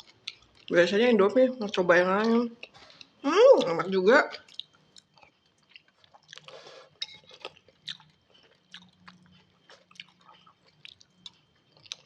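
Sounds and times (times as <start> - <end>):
person chewing noodles: 0.0 - 0.7, 4.4 - 12.0.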